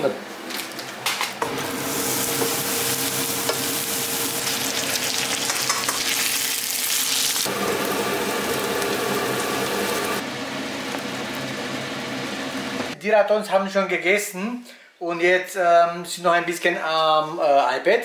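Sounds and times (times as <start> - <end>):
onion and rice sizzling in oil: 1.4 - 13.0.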